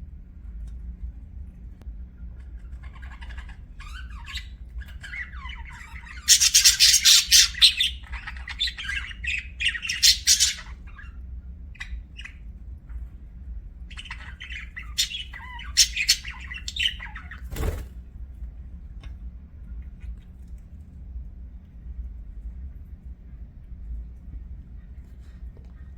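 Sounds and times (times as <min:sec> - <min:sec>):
budgerigar chirping and chattering: 0:02.7 - 0:11.2, 0:13.9 - 0:17.4
budgerigar harsh squawks: 0:06.0 - 0:10.8, 0:14.1 - 0:17.2.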